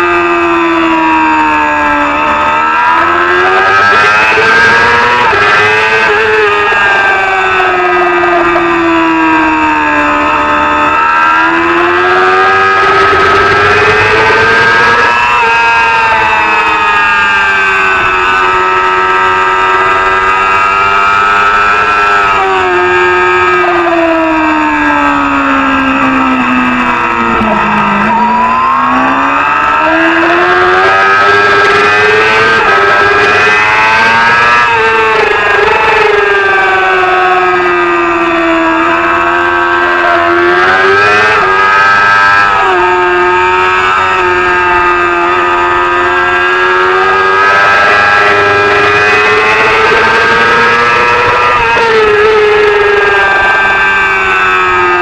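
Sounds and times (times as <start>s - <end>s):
race motorcycle engine revving: 0.0s - 55.0s.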